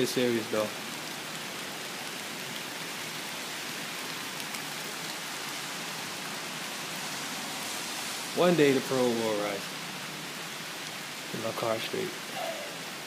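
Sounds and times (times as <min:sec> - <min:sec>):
raindrop ticks: 0:00.0 - 0:03.2, 0:04.0 - 0:05.2
heavy rain falling: 0:00.0 - 0:13.0.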